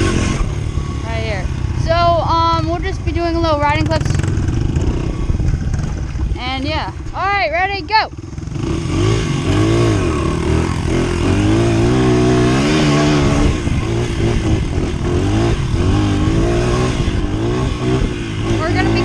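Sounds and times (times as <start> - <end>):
wind rushing on microphone: 0.0 - 7.2, 11.8 - 19.0
dirt bike engine revving: 0.0 - 19.0.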